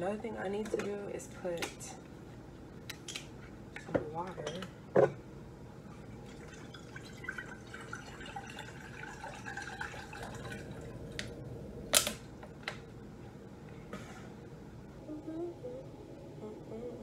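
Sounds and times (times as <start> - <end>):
tap water running into bowl: 6.3 - 11.0.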